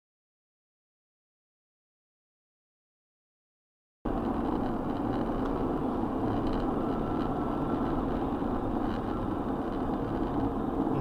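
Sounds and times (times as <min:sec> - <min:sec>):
car engine and road noise: 0:04.1 - 0:11.0.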